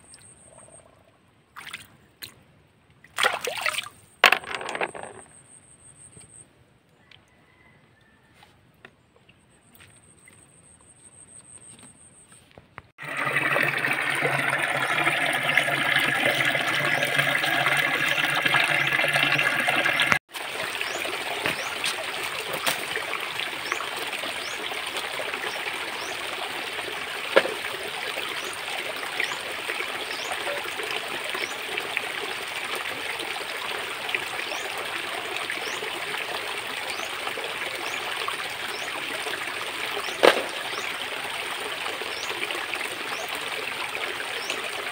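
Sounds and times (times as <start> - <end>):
small water splash: 1.5 - 2.4, 3.0 - 4.0, 13.0 - 41.2
close rush of water: 13.0 - 44.9
stream trickling over stones: 13.0 - 44.9.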